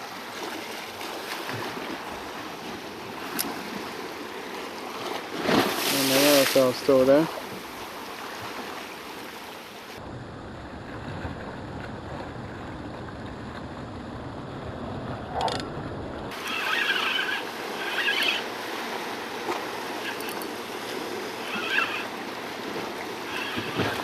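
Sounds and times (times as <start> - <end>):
sea washing against rocks: 0.0 - 9.4, 16.3 - 24.0.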